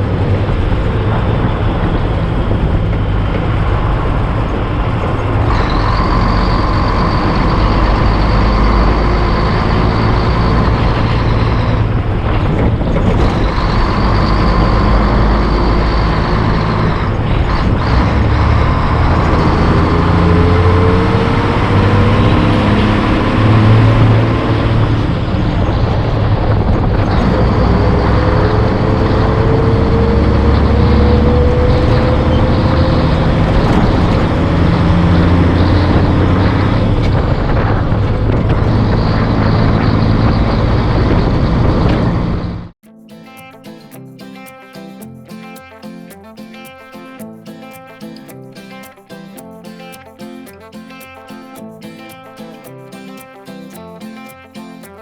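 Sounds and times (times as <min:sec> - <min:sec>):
thin whine: 0:00.0 - 0:42.5
diesel truck engine drone: 0:00.0 - 0:42.8.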